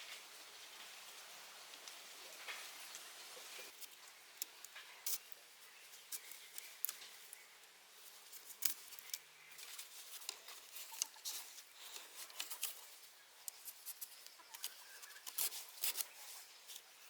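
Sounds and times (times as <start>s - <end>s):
rustles: 0.0s - 17.0s
small clicks and taps: 6.1s - 16.1s.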